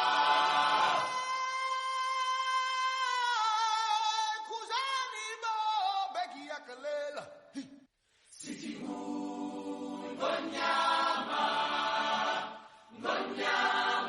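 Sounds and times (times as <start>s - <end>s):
choir holding a chord: 8.4s - 14.0s.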